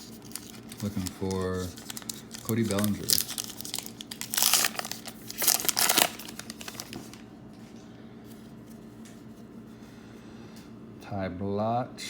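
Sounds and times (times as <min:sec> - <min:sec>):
wrapper tearing and crumpling: 0:00.0 - 0:07.3
faint steady hum: 0:00.0 - 0:12.0.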